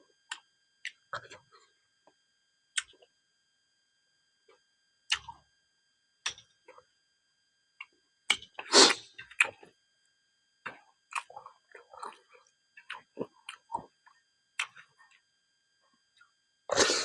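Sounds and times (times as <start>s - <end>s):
person chewing with crunches: 7.8s - 9.7s, 10.6s - 15.2s, 16.7s - 17.0s.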